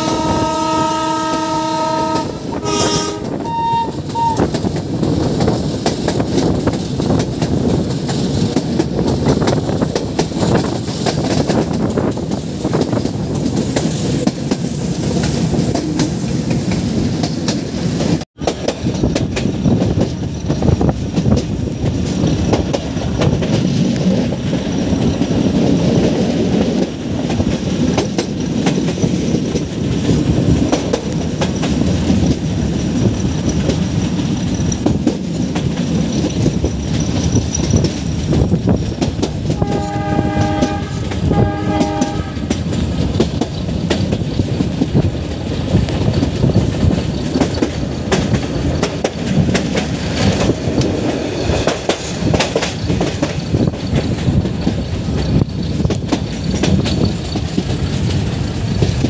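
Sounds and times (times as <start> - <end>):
train horn blasts: 0.0 - 4.6, 39.5 - 42.6
train rumble: 0.0 - 59.0
train wheels clattering: 0.0 - 59.0.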